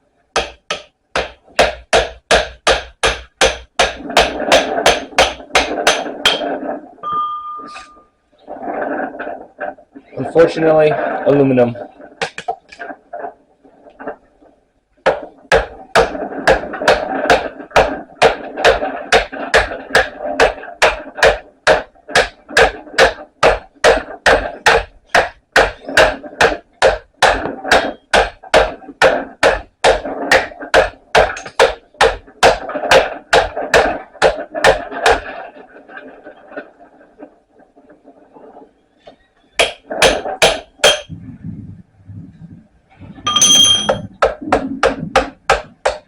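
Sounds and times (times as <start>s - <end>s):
hammer striking chisel on steel: 0.4s - 6.5s, 39.6s - 41.1s, 43.3s - 44.1s.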